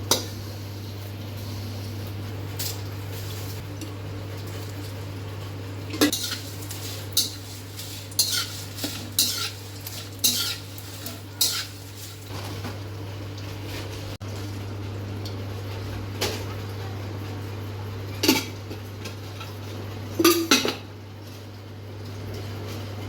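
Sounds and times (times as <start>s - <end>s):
metal spoon scraping a pan: 6.1s - 12.3s.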